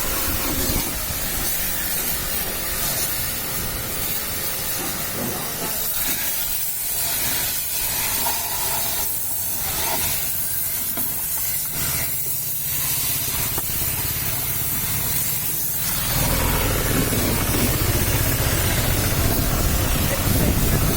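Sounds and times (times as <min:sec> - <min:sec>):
high-pressure water jet hissing: 0:00.0 - 0:20.9
low rumble: 0:15.9 - 0:20.9.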